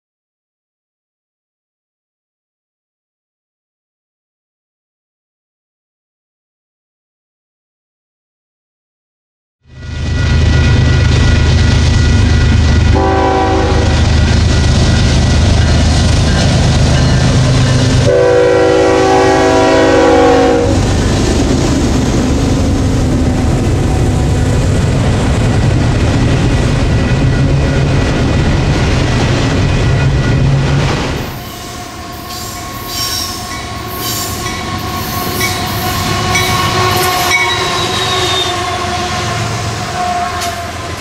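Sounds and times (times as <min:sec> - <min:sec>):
locomotive engine rumble: 0:10.3 - 0:32.9
locomotive air horn chord: 0:12.9 - 0:14.1, 0:18.0 - 0:20.9, 0:31.4 - 0:41.0
train wheels clacking on rails: 0:14.0 - 0:18.3.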